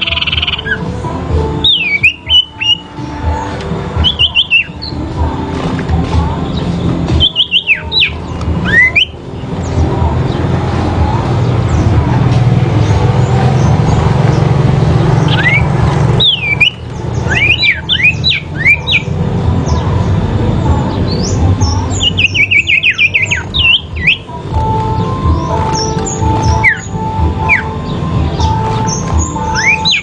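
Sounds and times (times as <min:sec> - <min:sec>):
bird chirping fast sharp calls: 0:01.6 - 0:05.0, 0:06.5 - 0:09.9, 0:12.8 - 0:20.1, 0:21.0 - 0:30.0.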